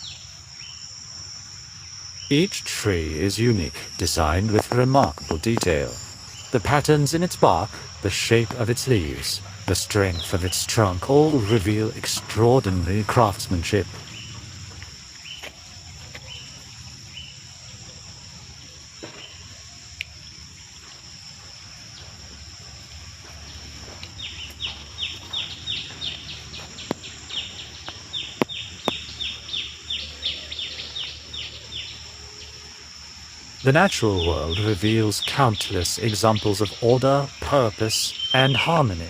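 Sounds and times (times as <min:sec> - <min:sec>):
high insect drone: 0:00.0 - 0:39.0.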